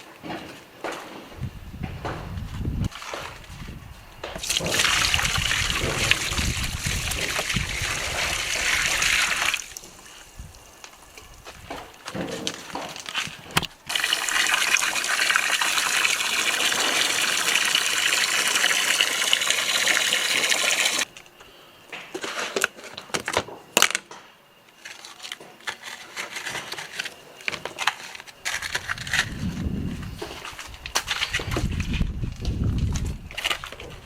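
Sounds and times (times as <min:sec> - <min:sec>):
water rushing: 0:13.9 - 0:21.0.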